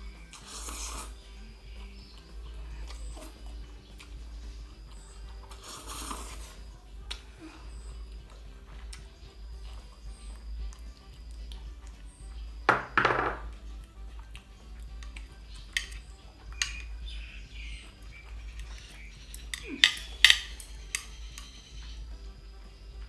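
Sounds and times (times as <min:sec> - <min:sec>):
utensils clinking against dish: 0:15.0 - 0:21.8.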